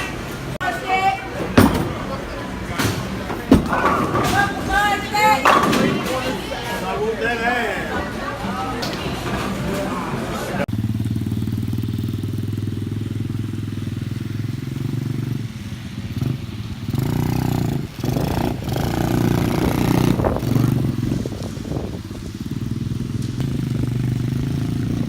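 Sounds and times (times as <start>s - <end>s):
dirt-bike engine running: 10.7s - 25.0s.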